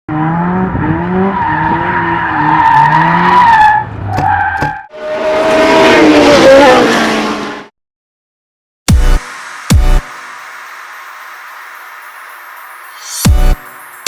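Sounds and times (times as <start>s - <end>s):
car engine revving: 0.1s - 4.2s.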